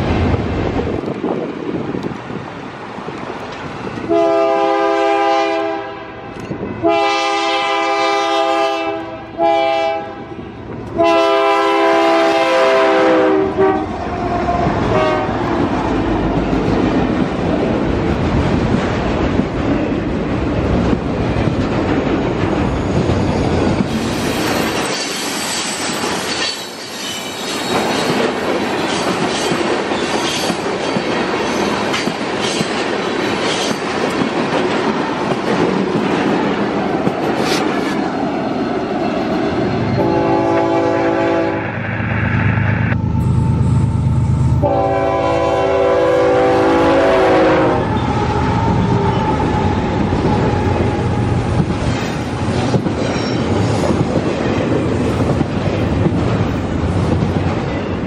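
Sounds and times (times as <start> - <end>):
locomotive chime air horn: 4.1 - 10.3, 11.0 - 13.9, 14.9 - 15.3, 40.0 - 41.6, 44.6 - 48.1
high wheel squeal: 22.7 - 28.2.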